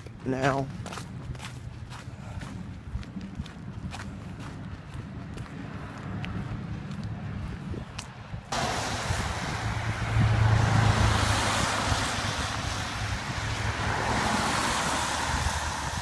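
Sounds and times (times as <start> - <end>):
vehicle tyres hissing on wet road: 8.5 - 16.0.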